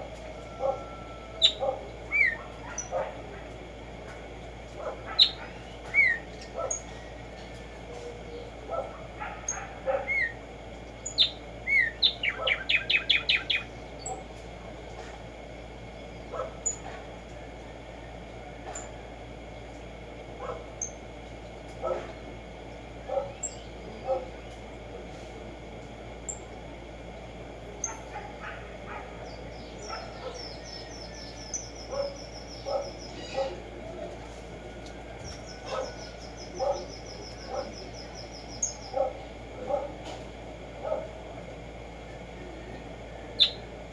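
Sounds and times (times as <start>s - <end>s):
faint bird calls and chips: 0.0s - 19.0s, 20.6s - 27.1s, 27.8s - 40.4s, 41.0s - 43.9s
sparrow singing: 0.5s - 3.2s, 5.0s - 14.4s, 15.8s - 16.8s, 23.2s - 24.4s, 27.8s - 33.7s, 35.2s - 39.6s, 42.7s - 43.9s.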